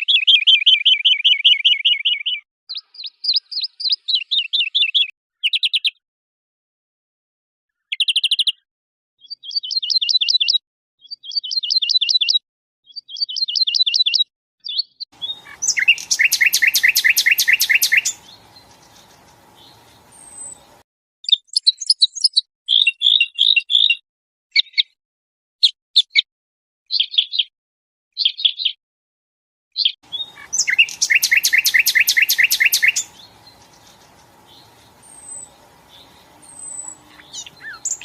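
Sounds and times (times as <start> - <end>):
background hiss: 15.2 - 20.8, 30.1 - 38.0
songbird trilling: 15.2 - 20.8, 30.1 - 38.0.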